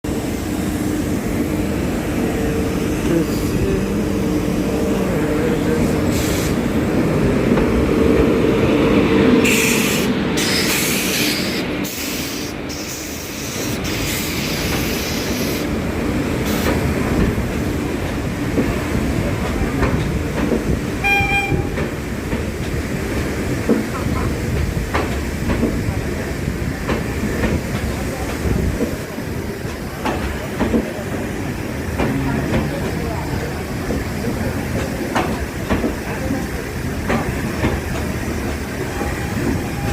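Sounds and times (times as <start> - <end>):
passenger train running on rails: 0.0 - 39.9
short pitched tone: 21.0 - 21.8.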